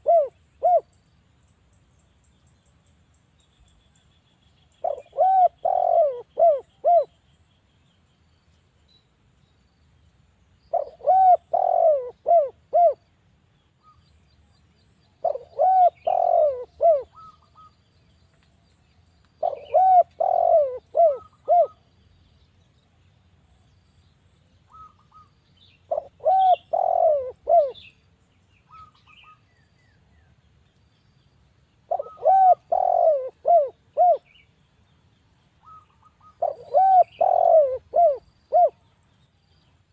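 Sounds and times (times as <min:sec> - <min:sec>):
dove cooing: 0:00.0 - 0:00.9, 0:04.8 - 0:07.2, 0:10.7 - 0:13.0, 0:15.2 - 0:17.7, 0:19.4 - 0:21.9, 0:25.9 - 0:27.9, 0:31.9 - 0:34.4, 0:35.6 - 0:38.8
faint high bird chirps: 0:00.0 - 0:09.6, 0:13.6 - 0:31.2, 0:31.8 - 0:39.9.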